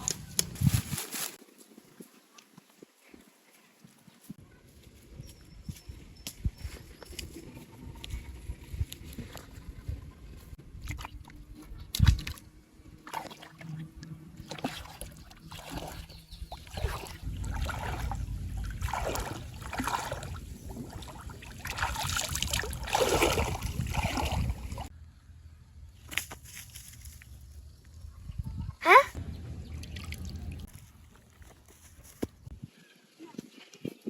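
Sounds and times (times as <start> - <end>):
water sloshing and splashing: 10.7 - 24.9, 29.6 - 31.8.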